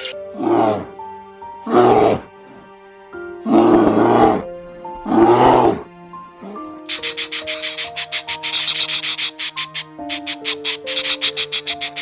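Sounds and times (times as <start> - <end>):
background music: 0.0 - 12.0
large animal roaring: 0.3 - 0.9, 1.6 - 2.3, 3.4 - 6.7.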